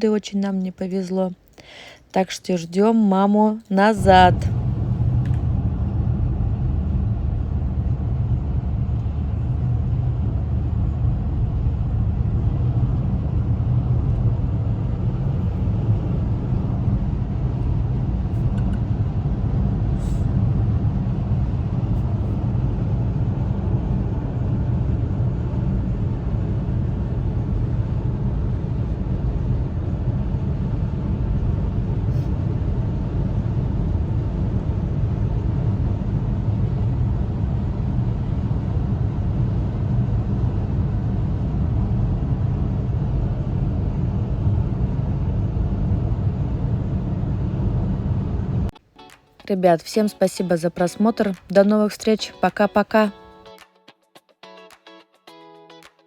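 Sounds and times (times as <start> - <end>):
car engine and road noise: 3.9 - 48.7.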